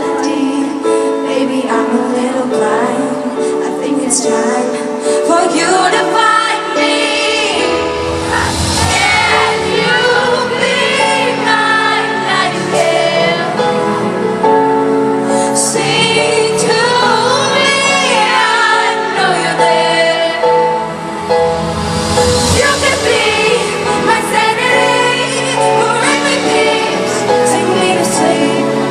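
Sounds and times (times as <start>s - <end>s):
woman singing: 0.0s - 7.8s, 15.5s - 20.5s, 22.4s - 28.9s
crowd singing along: 0.0s - 28.9s
band accompaniment: 6.8s - 28.9s.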